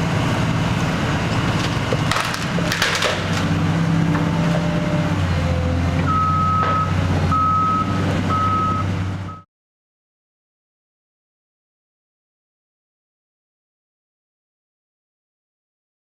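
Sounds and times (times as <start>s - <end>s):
diesel machinery running: 0.0s - 9.4s
sharp cracks and knocks: 1.6s - 3.5s
backup alarm beeping: 6.1s - 9.4s.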